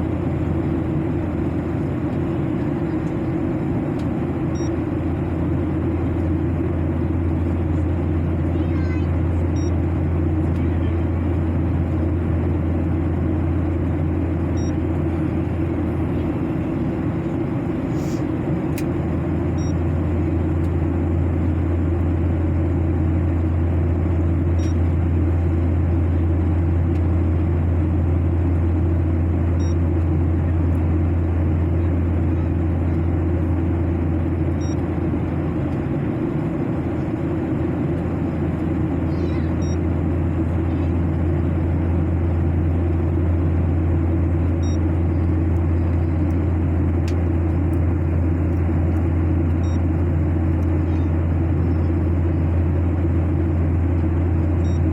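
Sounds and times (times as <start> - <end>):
airliner cabin engine drone: 0.0 - 54.9.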